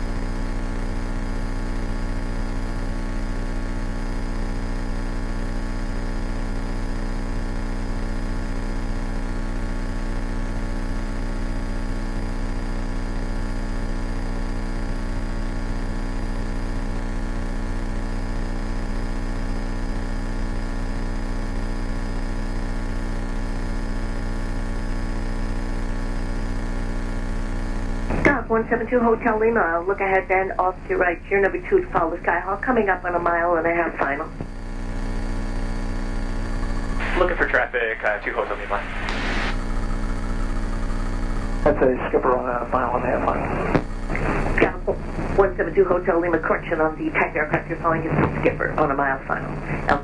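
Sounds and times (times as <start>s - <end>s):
light aircraft engine droning: 37.0s - 39.5s.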